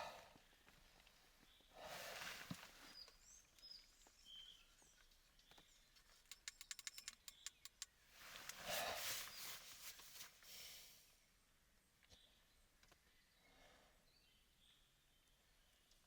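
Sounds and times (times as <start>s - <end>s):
faint bird chirps: 2.8s - 8.0s
rapid sharp clicks: 6.3s - 8.6s.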